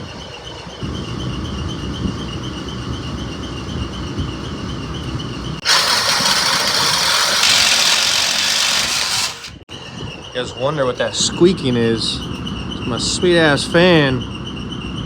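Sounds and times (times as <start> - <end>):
fan running with wavering squeak: 0.0 - 15.0
loud hiss-like noise: 5.6 - 9.6.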